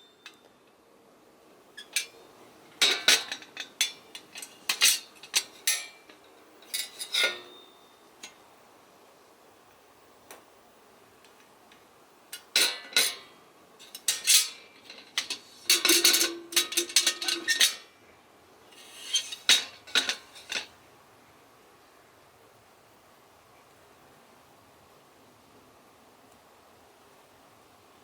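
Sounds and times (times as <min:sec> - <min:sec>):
metal kettle lid clattering: 0:02.8 - 0:06.0, 0:15.2 - 0:17.8.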